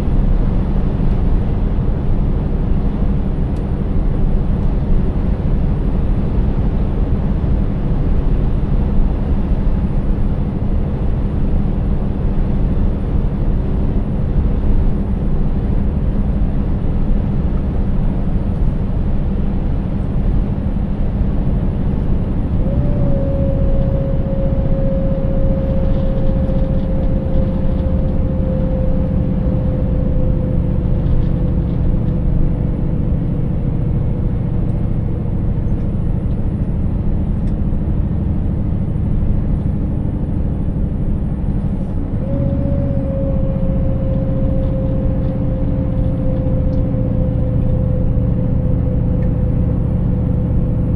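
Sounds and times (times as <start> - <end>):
road noise: 0.0 - 50.9
truck diesel engine drone: 0.0 - 50.9
thin whining tone: 22.4 - 31.9, 41.6 - 50.9.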